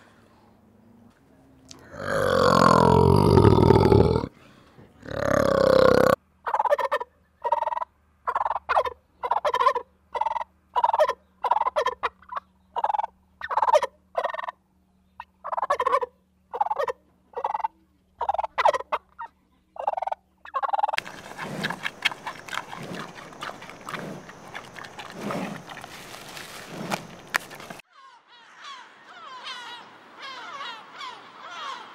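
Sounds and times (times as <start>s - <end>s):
turkey gobbling: 6.5s - 14.5s, 15.4s - 27.8s
panda chewing bamboo: 21.0s - 27.8s.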